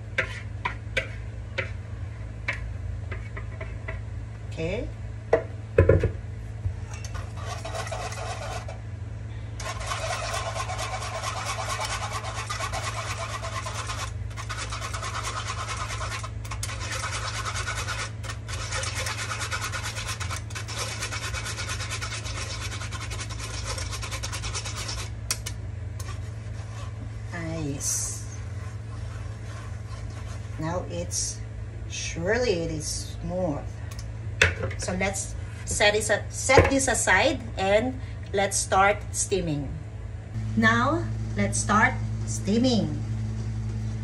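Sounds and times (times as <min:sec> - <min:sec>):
spoon scraping batter through strainer: 0:07.0 - 0:08.8, 0:09.6 - 0:27.2, 0:27.8 - 0:30.6.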